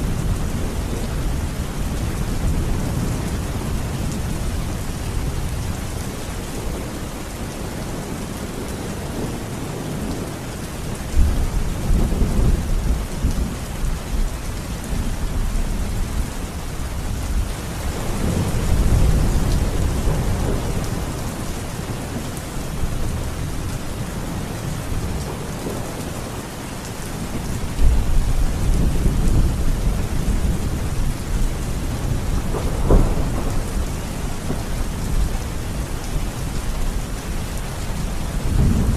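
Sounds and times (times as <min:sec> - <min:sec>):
steady rain: 0:00.0 - 0:38.9
thunder rumbling: 0:17.2 - 0:26.2, 0:27.2 - 0:38.9.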